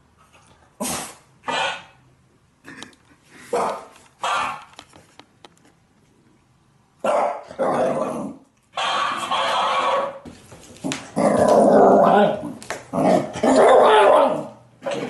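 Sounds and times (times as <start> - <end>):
dog barking: 1.5 - 2.0, 3.5 - 4.6, 7.0 - 7.6, 8.8 - 10.2, 13.5 - 15.0
toy mimicking barks: 3.6 - 4.7.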